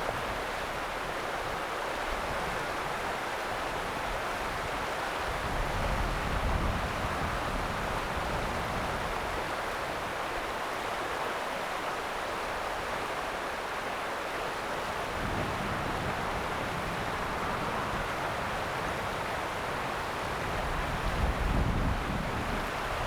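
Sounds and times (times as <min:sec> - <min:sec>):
wind rumble on microphone: 0:03.7 - 0:10.2, 0:14.8 - 0:23.0
river water rushing: 0:07.6 - 0:21.3.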